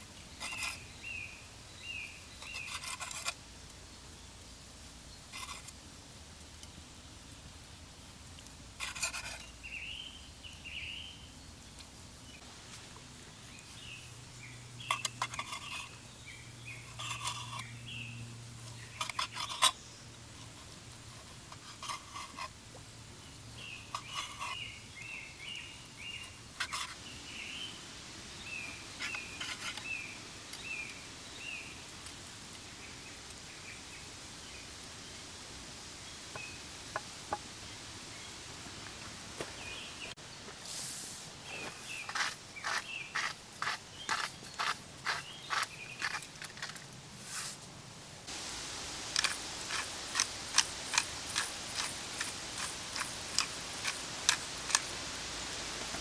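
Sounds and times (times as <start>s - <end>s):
small birds chirping: 0.2s - 3.3s, 9.4s - 12.5s, 13.2s - 22.4s, 23.1s - 35.4s, 41.4s - 46.7s, 48.3s - 56.0s.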